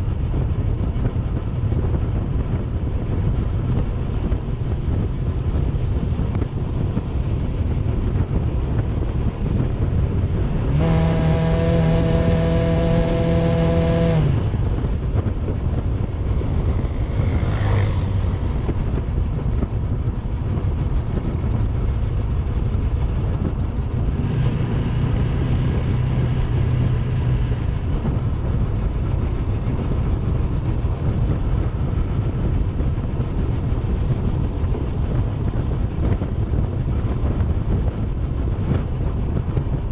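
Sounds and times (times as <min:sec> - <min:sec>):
motorcycle running: 0:00.0 - 0:39.9
wind rumble on microphone: 0:00.0 - 0:39.9.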